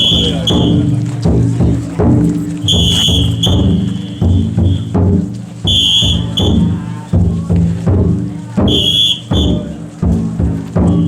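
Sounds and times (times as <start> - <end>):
shrill whistle blasts: 0.0 - 0.8, 2.6 - 5.0, 5.7 - 6.8, 8.7 - 9.8
large drum beating: 0.0 - 11.0
low drone of voices: 3.6 - 11.0.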